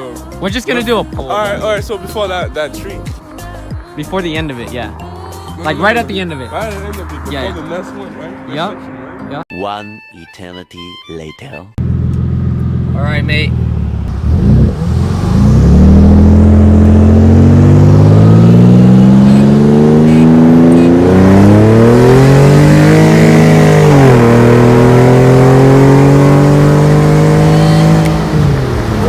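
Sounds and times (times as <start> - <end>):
race car engine at full throttle: 11.8 - 29.0.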